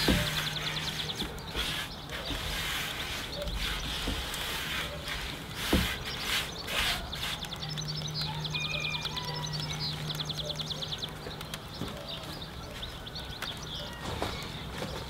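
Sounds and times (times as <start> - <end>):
bird trilling: 0.0 - 2.4.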